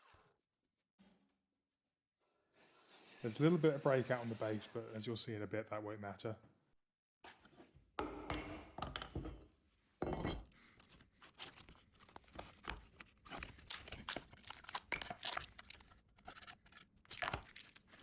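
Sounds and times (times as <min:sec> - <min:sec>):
hand scraping plywood: 0:02.6 - 0:05.0.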